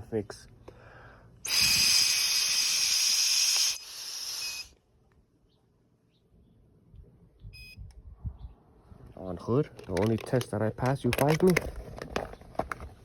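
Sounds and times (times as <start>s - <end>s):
pressurized gas hissing: 1.4s - 4.8s.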